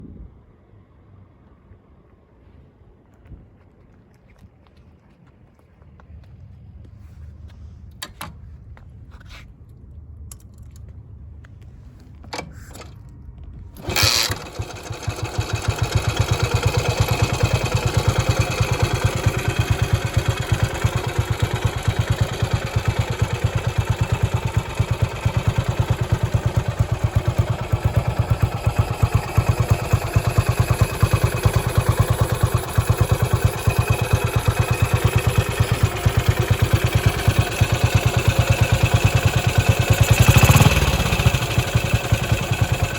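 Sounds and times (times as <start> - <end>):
motorcycle engine starting and running: 13.7 - 42.9.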